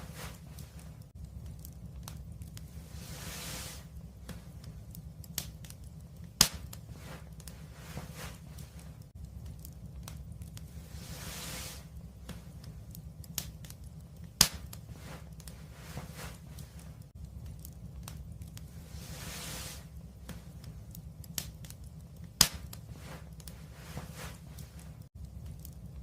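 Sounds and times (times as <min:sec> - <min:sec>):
wood fire crackling: 0:00.0 - 0:26.0
hiss: 0:02.7 - 0:04.5, 0:10.7 - 0:12.5, 0:18.7 - 0:20.5
loud sharp pops: 0:06.4 - 0:06.8, 0:14.4 - 0:14.8, 0:22.4 - 0:22.8.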